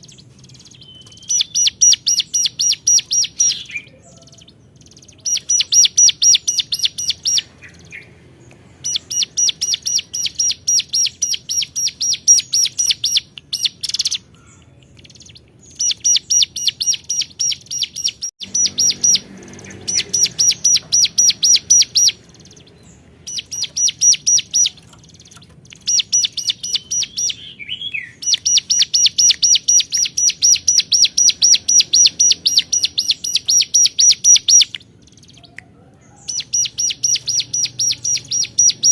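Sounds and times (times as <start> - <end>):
bird calling rapid high notes: 15.8 - 22.6, 23.2 - 25.0, 25.8 - 34.8.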